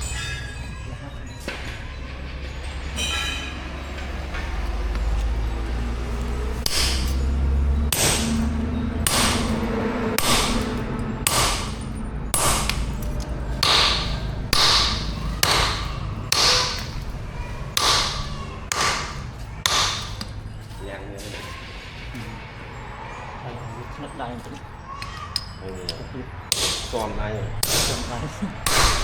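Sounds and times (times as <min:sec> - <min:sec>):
hammer striking metal on anvil: 0:06.6 - 0:17.1, 0:17.8 - 0:20.6, 0:25.0 - 0:29.0.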